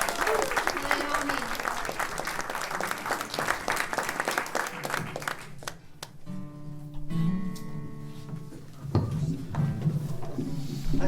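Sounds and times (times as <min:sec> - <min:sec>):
audience applause: 0:00.0 - 0:05.9.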